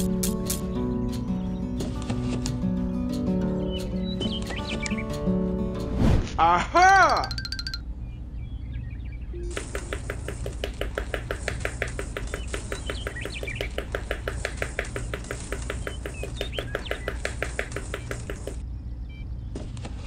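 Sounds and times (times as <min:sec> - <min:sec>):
steady low hum: 0:02.6 - 0:20.0
fast even tapping: 0:07.1 - 0:07.8, 0:09.4 - 0:18.6.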